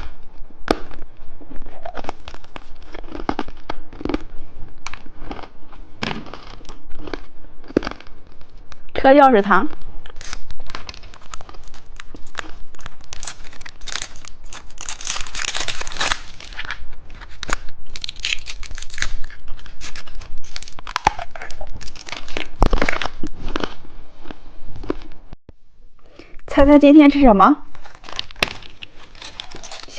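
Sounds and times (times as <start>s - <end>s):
candy wrappers crinkling: 1.6s - 5.5s, 9.7s - 25.0s, 27.7s - 29.9s.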